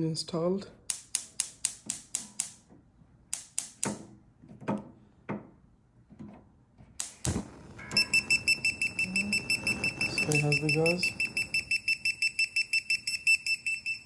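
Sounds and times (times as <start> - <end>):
hardware clicks and knocks: 3.4 - 8.1.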